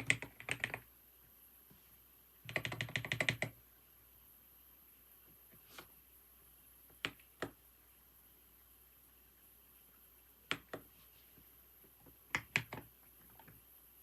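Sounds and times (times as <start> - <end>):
keyboard keystrokes: 0.0 - 0.8, 2.5 - 3.5, 12.3 - 13.6.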